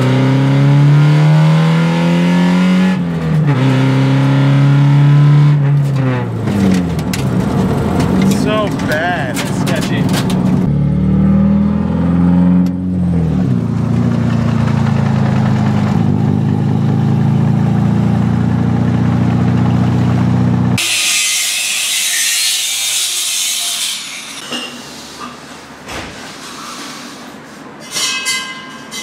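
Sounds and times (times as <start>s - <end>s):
car engine running: 5.8s - 11.2s, 12.6s - 20.8s.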